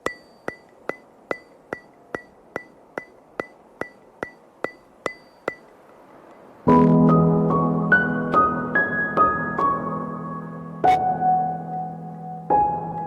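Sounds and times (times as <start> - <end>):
sharp ringing ticks: 0.0 - 6.5
soft piano music: 6.3 - 13.0.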